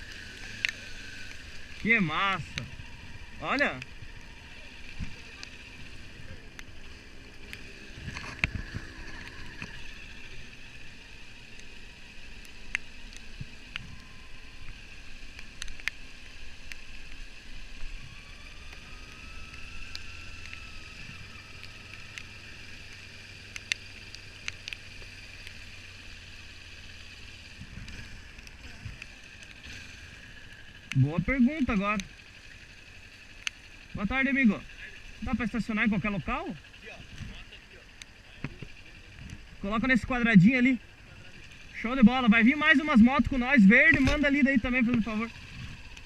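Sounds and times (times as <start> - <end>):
motorcycle engine running: 0.0 - 46.0
small clicks: 0.1 - 1.9, 11.4 - 34.0.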